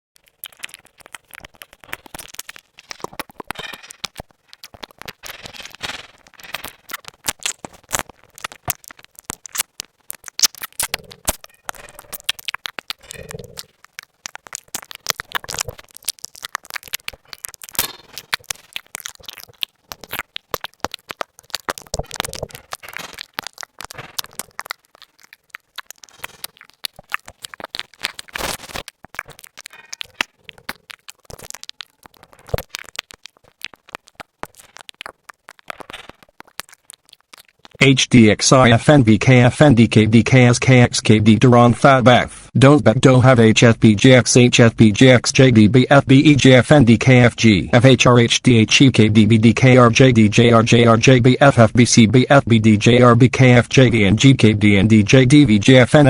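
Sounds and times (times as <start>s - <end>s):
sharp clicking and crackling: 0.2s - 37.9s.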